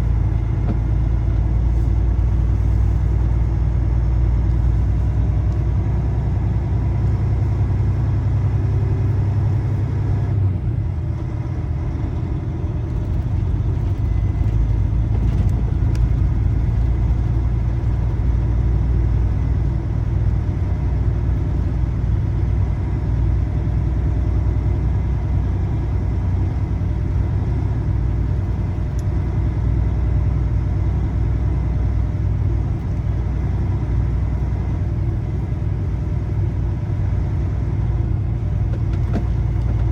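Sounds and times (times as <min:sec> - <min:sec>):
diesel truck engine rumbling: 0:00.0 - 0:39.9.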